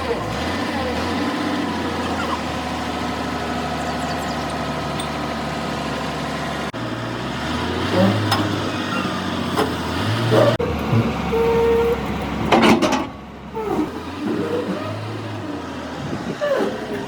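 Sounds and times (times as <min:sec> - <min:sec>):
engine hum: 0:00.0 - 0:17.0
engine idling: 0:00.0 - 0:17.0.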